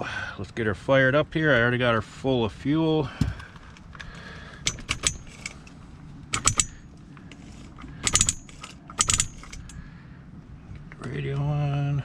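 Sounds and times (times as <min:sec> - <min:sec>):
metallic clinking and rattling: 0:03.2 - 0:09.8.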